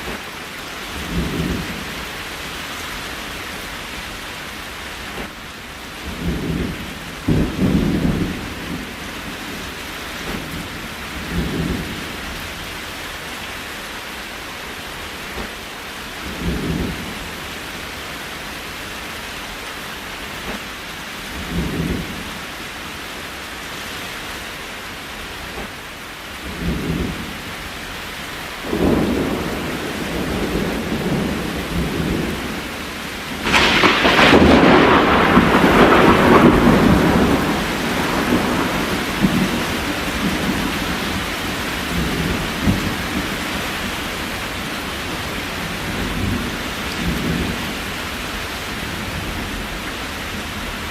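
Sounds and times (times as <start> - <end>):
steady rain: 0.0 - 50.9
thunder rumbling: 6.0 - 12.2, 28.6 - 50.9
thunder crack: 28.7 - 32.7, 33.3 - 41.2.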